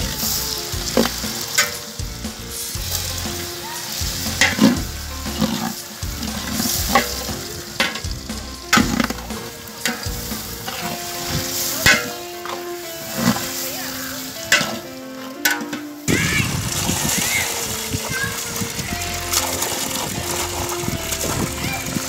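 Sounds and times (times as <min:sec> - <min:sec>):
onions sizzling in hot oil: 0:00.0 - 0:22.0
metal ladle scraping pot: 0:16.6 - 0:22.0.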